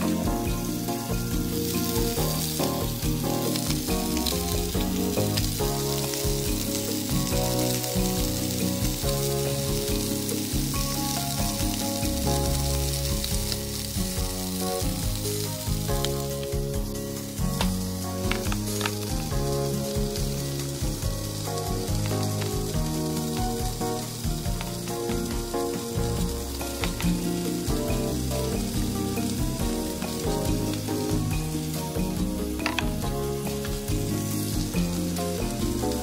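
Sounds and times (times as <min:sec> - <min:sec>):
background music: 0:00.0 - 0:36.0
food sizzling in a pan: 0:00.0 - 0:36.0.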